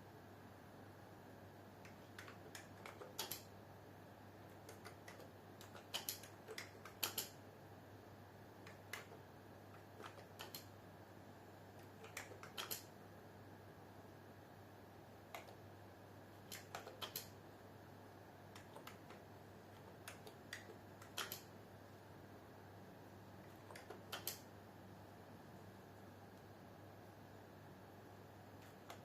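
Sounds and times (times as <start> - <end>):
low steady hum: 0.0 - 29.0
computer keyboard typing: 1.8 - 3.5, 4.4 - 7.4, 8.6 - 10.7, 11.8 - 12.9, 15.3 - 15.6, 16.4 - 17.4, 18.5 - 21.5, 23.5 - 24.5, 28.6 - 29.0.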